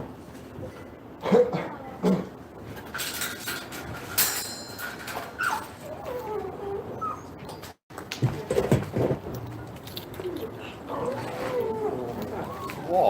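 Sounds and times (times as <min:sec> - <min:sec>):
dog whining: 0:05.3 - 0:07.8, 0:10.1 - 0:13.0.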